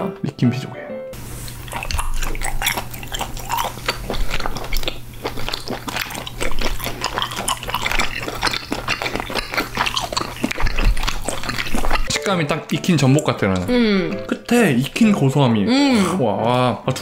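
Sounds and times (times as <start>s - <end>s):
close chewing mouth clicks: 1.4s - 12.1s.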